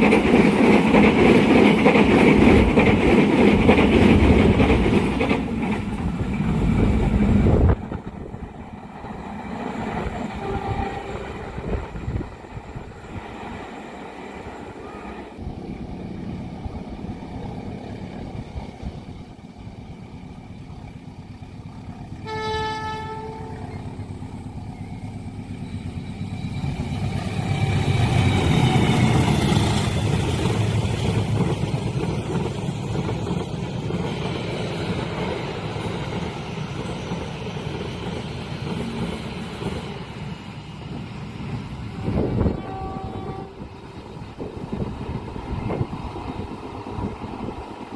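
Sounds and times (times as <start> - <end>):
train wheels rumbling on rails: 0.0 - 47.9
train horn blast: 10.3 - 11.4, 22.2 - 24.0, 42.2 - 43.8.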